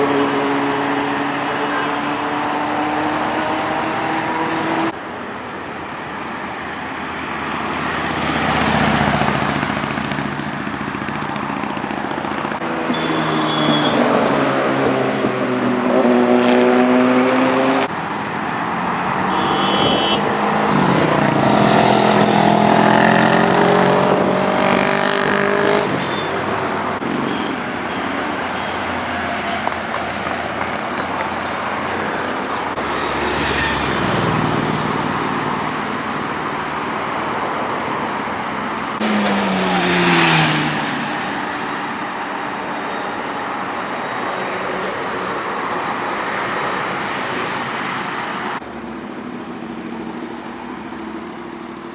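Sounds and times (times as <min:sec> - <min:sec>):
motorbike passing by: 0:00.0 - 0:05.0, 0:07.3 - 0:42.7
traffic noise: 0:00.0 - 0:51.9
motorbike engine accelerating: 0:08.2 - 0:17.9, 0:19.3 - 0:28.7.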